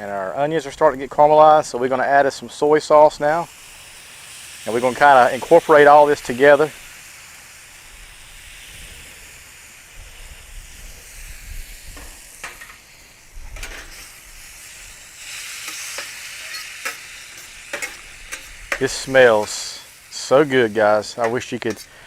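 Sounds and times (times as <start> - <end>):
chicken and onions sizzling: 0.0 - 22.0
spatula scraping a pan: 15.2 - 19.6.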